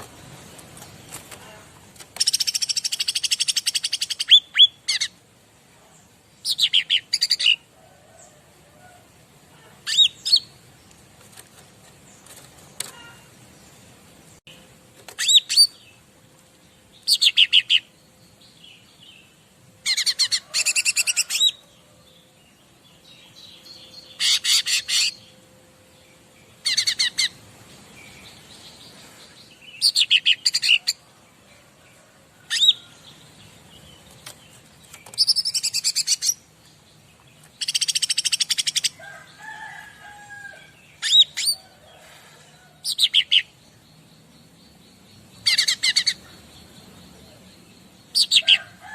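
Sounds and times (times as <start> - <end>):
songbird trilling: 37.6 - 39.0, 44.7 - 48.7.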